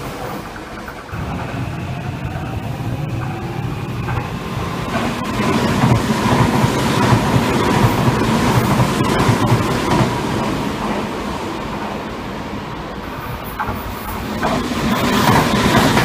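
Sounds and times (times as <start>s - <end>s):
steady whine: 0.0s - 9.7s
wheels clacking over rail joints: 0.0s - 12.0s, 13.5s - 16.0s
train passing at speed: 0.0s - 16.0s.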